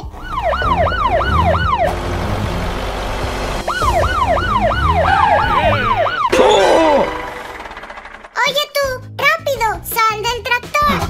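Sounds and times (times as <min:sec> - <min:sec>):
electronic police siren wailing: 0:00.0 - 0:07.7.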